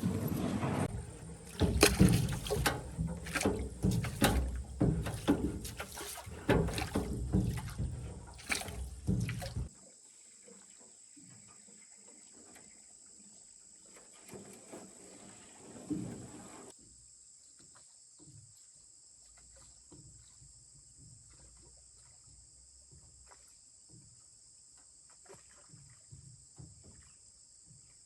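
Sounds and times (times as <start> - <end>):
knocks against a small boat: 0.0 - 9.7
water splashing: 0.0 - 9.7, 13.8 - 16.7.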